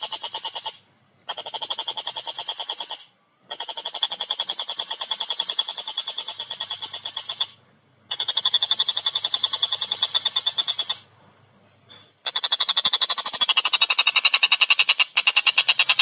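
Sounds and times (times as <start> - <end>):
kingfisher chattering call: 0.0 - 11.1.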